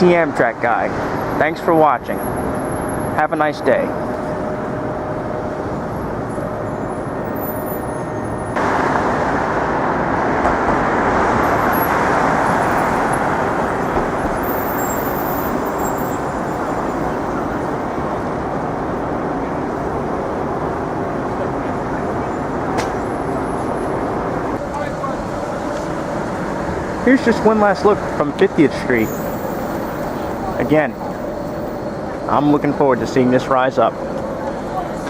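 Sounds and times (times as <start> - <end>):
street traffic passing: 0.0 - 35.0.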